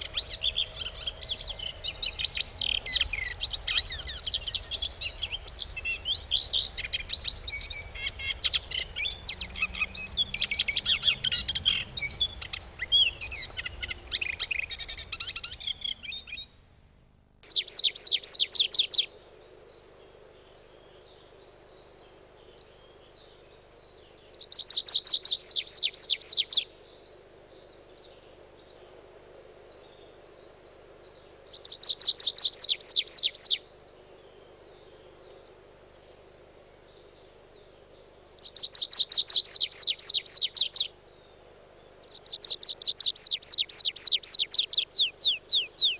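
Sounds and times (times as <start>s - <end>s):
bird trilling: 0.0s - 16.4s
chorus of chirping birds: 0.0s - 16.6s, 17.4s - 45.9s
faint bird twittering: 0.0s - 16.6s, 17.4s - 45.9s.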